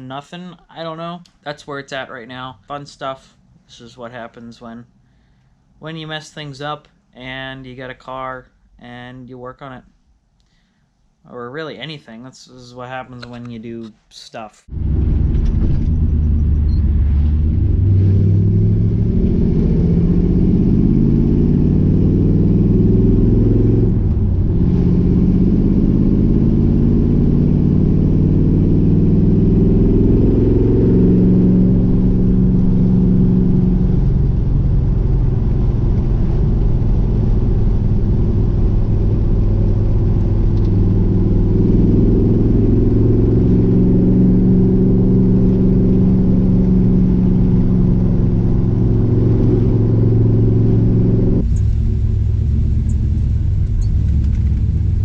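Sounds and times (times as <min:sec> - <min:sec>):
car engine accelerating: 0:14.7 - 0:55.0.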